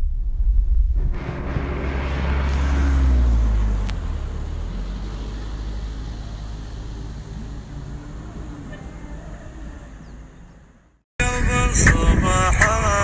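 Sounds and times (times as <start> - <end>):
motor vehicle passing: 1.0 - 11.0.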